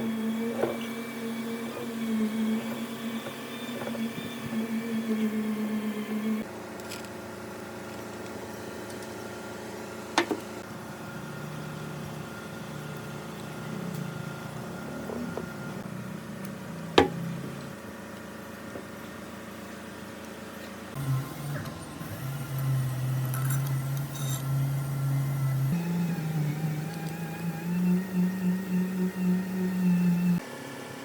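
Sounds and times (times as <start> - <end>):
machine hum: 0.0 - 7.1, 7.7 - 30.4
sharp knocks: 17.0 - 17.3.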